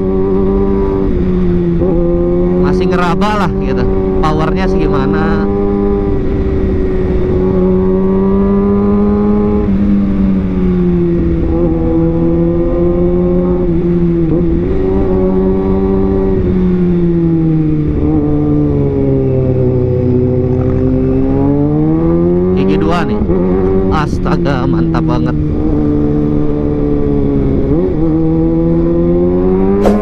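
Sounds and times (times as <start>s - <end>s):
motorcycle engine running: 25.3s - 30.0s.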